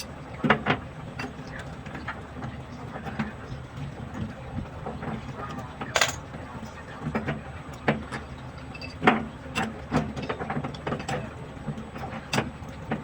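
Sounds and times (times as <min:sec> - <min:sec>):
sharp clicks and knocks: 0:05.9 - 0:06.2.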